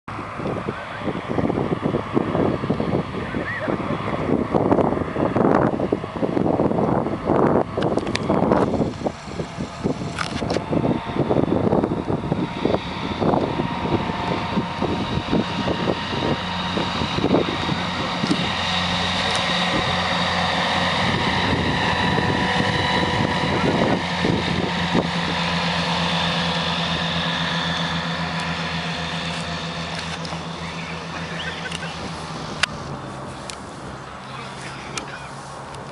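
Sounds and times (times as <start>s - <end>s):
light aircraft engine and propeller: 0.1s - 35.9s.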